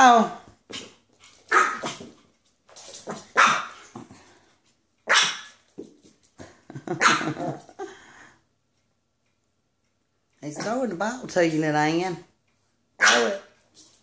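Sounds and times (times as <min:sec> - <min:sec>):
dog barking: 0:03.4 - 0:03.8, 0:05.1 - 0:05.6, 0:07.0 - 0:07.4, 0:13.0 - 0:13.5.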